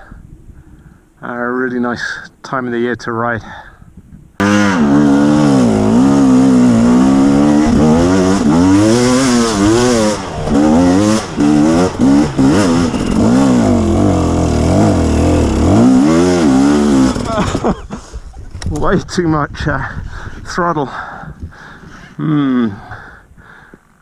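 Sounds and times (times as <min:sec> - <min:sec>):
dirt bike engine revving: 0:04.4 - 0:17.7.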